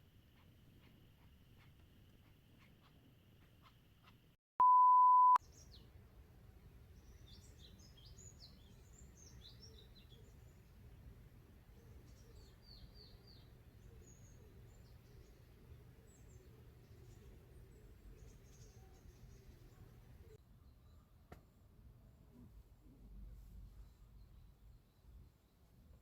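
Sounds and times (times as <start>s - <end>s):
small birds chirping: 0.2s - 4.4s, 5.2s - 6.0s, 6.6s - 21.6s
electronic beep: 4.6s - 5.4s.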